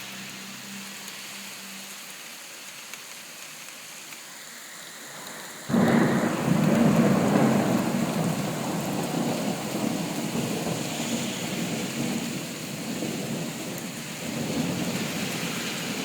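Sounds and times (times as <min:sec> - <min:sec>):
rain falling: 0:00.0 - 0:16.0
rolling thunder rumble: 0:05.6 - 0:16.0.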